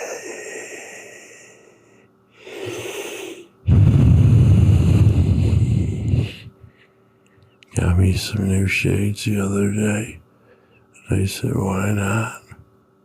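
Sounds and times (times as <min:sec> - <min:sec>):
person breathing hard into microphone: 0:00.0 - 0:07.0.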